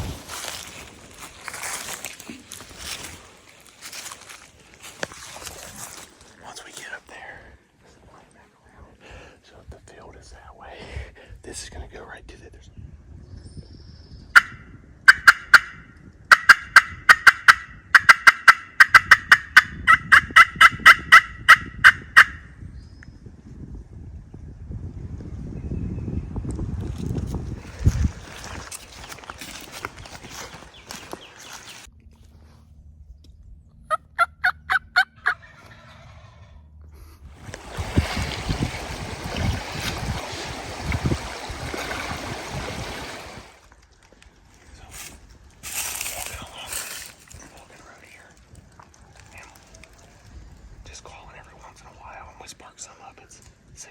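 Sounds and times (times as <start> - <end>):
turkey yelping and cutting: 15.1 - 22.4, 33.9 - 35.8.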